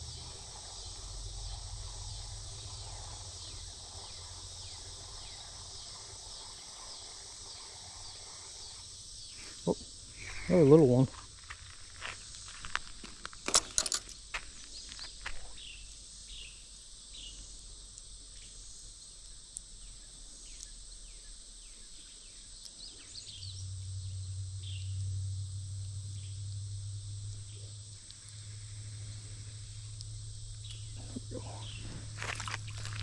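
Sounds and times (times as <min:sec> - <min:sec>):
high insect drone: 0:00.0 - 0:33.0
sharp clicks and knocks: 0:13.3 - 0:14.2
low hum: 0:23.2 - 0:33.0.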